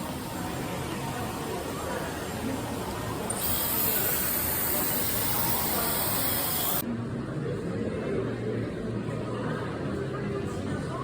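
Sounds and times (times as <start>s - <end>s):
air blower hissing: 3.3s - 6.8s.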